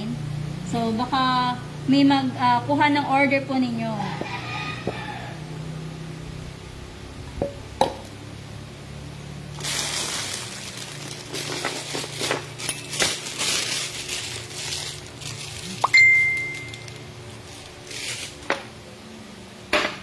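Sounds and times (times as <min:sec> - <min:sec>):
low steady hum: 0:00.0 - 0:20.0
kitchen utensils clinking: 0:09.6 - 0:15.0
scraping or rustling: 0:09.6 - 0:18.8.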